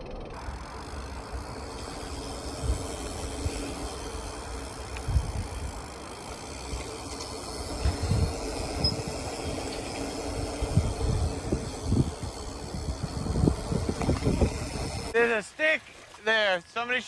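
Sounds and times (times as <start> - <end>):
bike frame rattle: 0.0 - 15.2
bike tyre rumble: 0.0 - 15.2.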